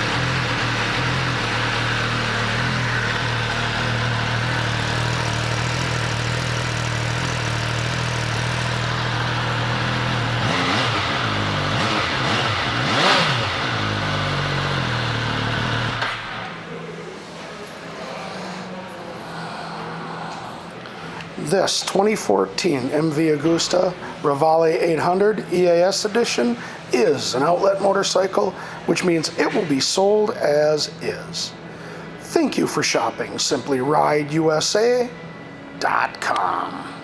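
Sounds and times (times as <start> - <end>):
motorcycle engine idling and revving: 0.0 - 16.5.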